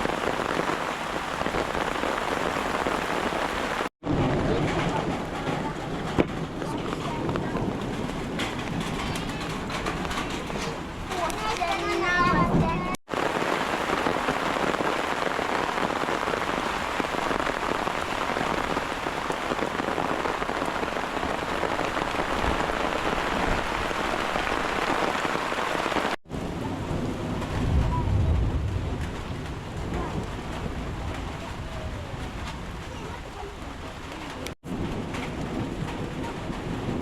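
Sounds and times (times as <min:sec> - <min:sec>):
rain falling: 0:00.0 - 0:37.0
low rumble: 0:26.8 - 0:32.9.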